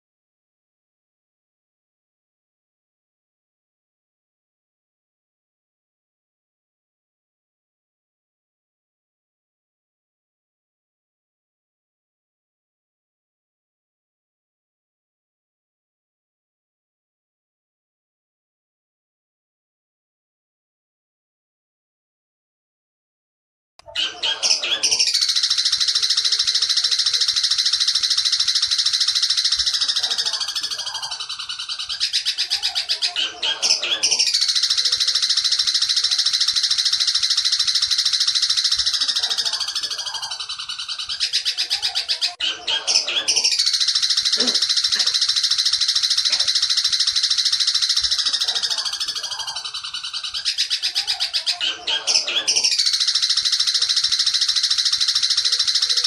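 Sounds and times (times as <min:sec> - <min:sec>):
bird song rapid chattering: 0:24.0 - 0:56.0.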